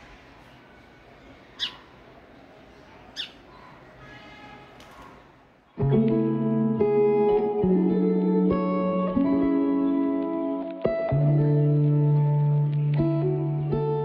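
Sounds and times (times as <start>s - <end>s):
sharp downsweeping bird calls: 1.2s - 2.0s, 3.0s - 4.0s
guitar background music: 5.8s - 14.0s.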